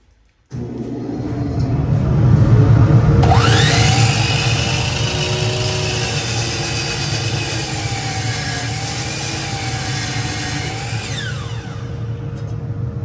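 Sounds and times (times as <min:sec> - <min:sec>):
rising whine: 0:00.5 - 0:13.0
bandsaw motor hum: 0:03.2 - 0:12.4.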